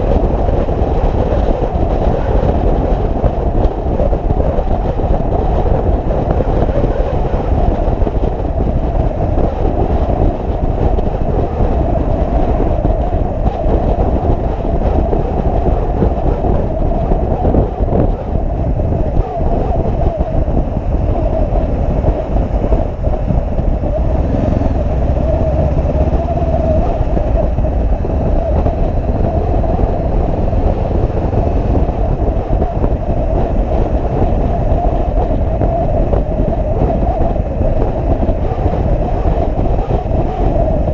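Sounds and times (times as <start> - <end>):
wind and road noise: 0.0 - 40.9
motorcycle engine running: 21.0 - 34.8.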